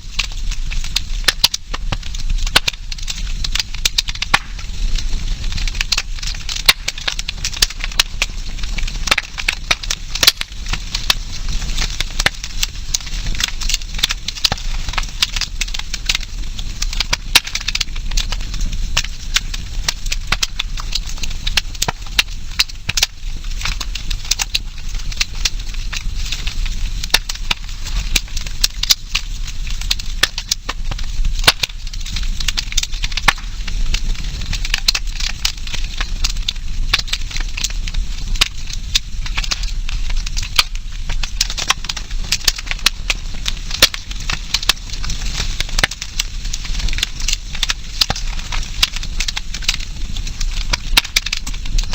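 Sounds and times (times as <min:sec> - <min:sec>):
campfire crackling and popping: 0:00.0 - 0:51.9.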